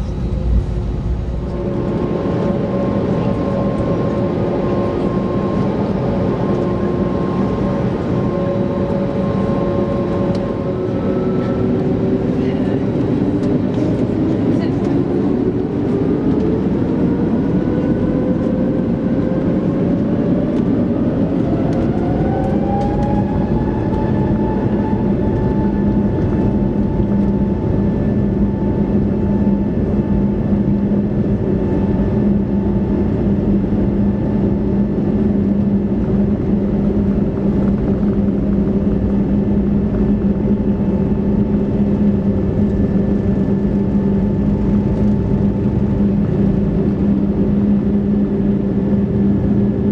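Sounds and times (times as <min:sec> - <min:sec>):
jet engines high whine: 0:00.0 - 0:49.9
loud steady cabin rumble: 0:00.0 - 0:49.9.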